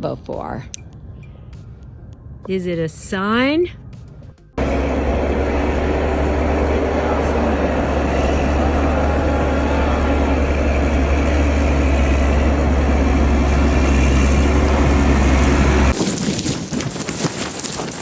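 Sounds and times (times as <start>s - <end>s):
loud low engine rumble: 4.6s - 16.0s.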